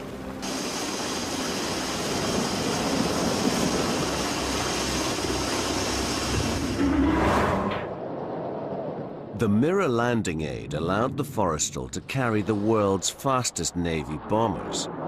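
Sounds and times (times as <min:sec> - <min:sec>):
jet engines roaring: 0:00.4 - 0:07.9.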